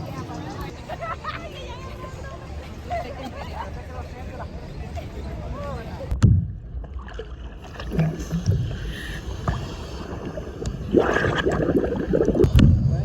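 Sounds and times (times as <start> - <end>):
muffled voices: 0.0 - 6.2
water sloshing and splashing: 6.2 - 12.6
wind on microphone: 7.7 - 13.0.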